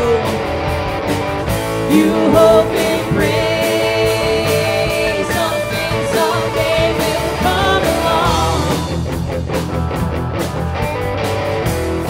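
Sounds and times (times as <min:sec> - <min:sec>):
rock band playing: 0:00.0 - 0:12.0
singer holding a wavering note: 0:01.9 - 0:06.5.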